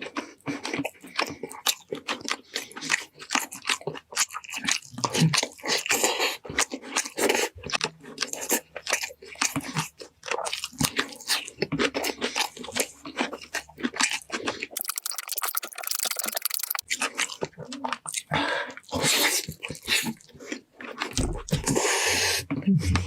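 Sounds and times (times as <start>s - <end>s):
wet chewing clicks: 14.8s - 18.2s.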